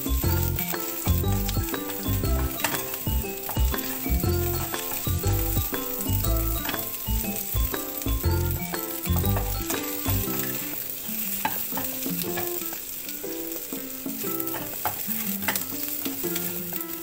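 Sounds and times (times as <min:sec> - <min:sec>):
background music: 0:00.0 - 0:17.0
chicken and onion sizzling: 0:00.0 - 0:17.0
spatula knocking against wok: 0:00.3 - 0:10.3.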